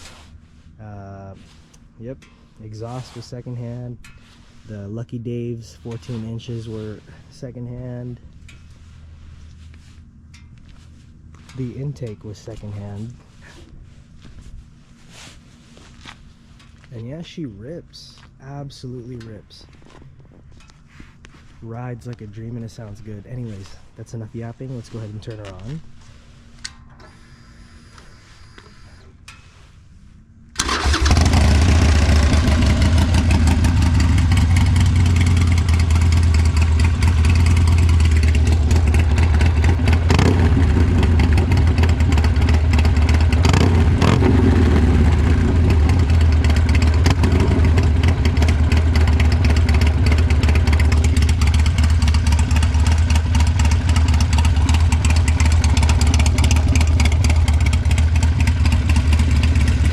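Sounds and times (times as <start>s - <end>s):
motorcycle engine starting and idling: 0.5s - 13.8s, 30.5s - 59.9s.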